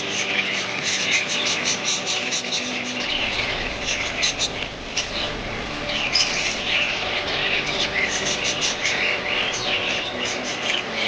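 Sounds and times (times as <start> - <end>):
budgerigars chattering and chirping: 0.0 - 11.0.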